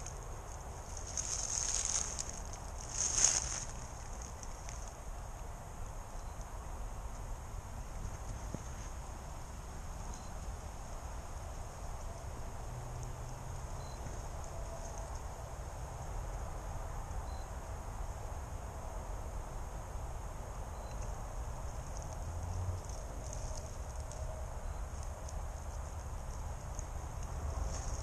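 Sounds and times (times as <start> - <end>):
high insect drone: 0.0 - 28.0
faint chirp: 6.1 - 6.7, 10.0 - 10.5, 13.7 - 15.3, 17.2 - 17.6, 20.6 - 22.2, 23.2 - 25.1.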